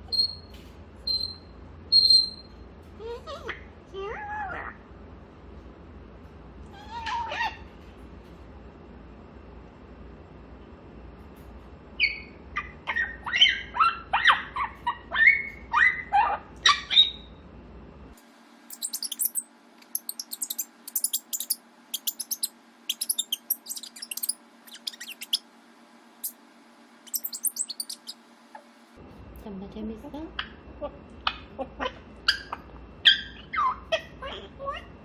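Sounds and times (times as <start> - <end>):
parrot whistling and squawking: 1.1 - 2.5, 12.0 - 17.3, 18.7 - 25.4, 27.1 - 28.2
parrot high clicking: 18.7 - 25.4, 27.1 - 28.2.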